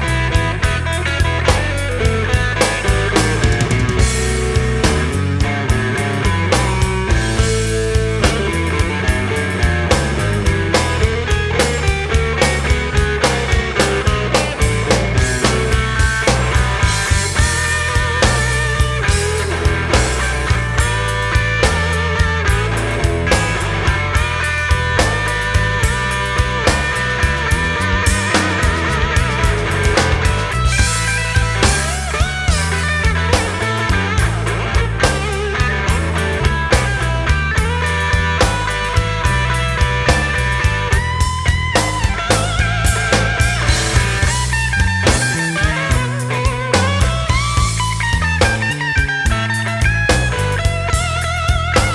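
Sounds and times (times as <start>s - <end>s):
rock music: 0.0s - 51.9s.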